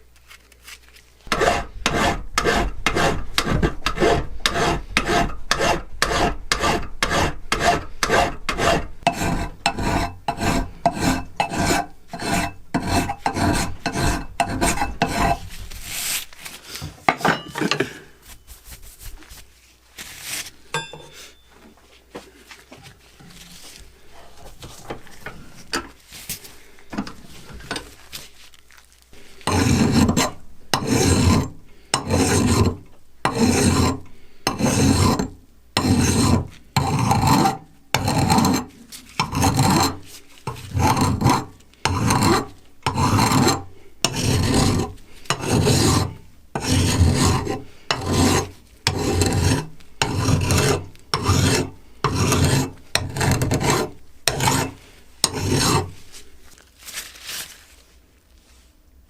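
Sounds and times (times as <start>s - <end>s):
hand file strokes: 1.3s - 17.0s, 29.2s - 56.3s.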